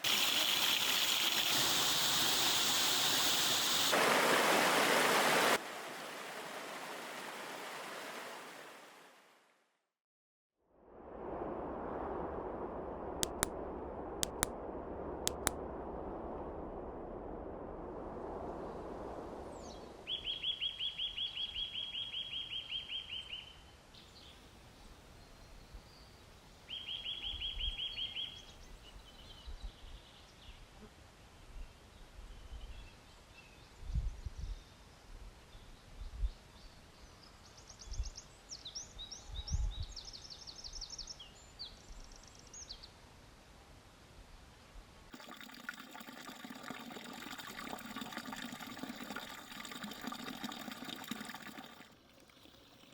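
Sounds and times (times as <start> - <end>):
running water: 0.0 - 9.3, 13.2 - 13.5, 14.2 - 14.5, 15.3 - 15.5, 45.1 - 52.9.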